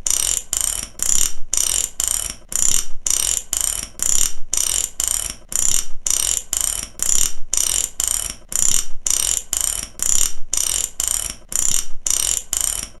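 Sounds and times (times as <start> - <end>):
ratchet wrench clicking: 0.0 - 13.0.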